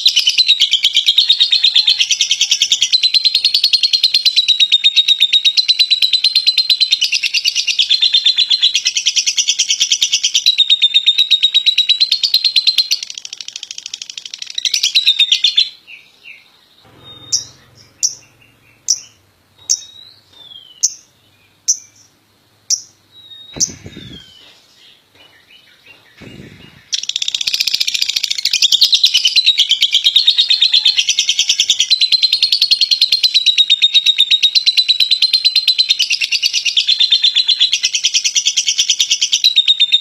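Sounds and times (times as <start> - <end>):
lovebird chattering trill: 16.9 - 24.5, 26.2 - 38.0
short bird chirps: 22.8 - 24.6, 26.1 - 28.7.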